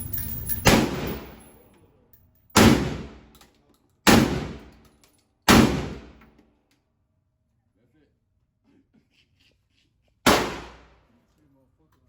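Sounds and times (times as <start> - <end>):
gunshots with echo: 0.6 - 1.4, 2.6 - 3.2.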